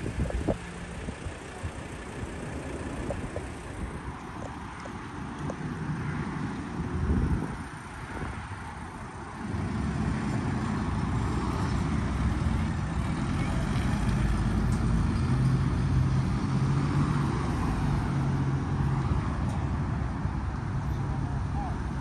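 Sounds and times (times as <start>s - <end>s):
vehicle engine running: 0.0s - 5.9s.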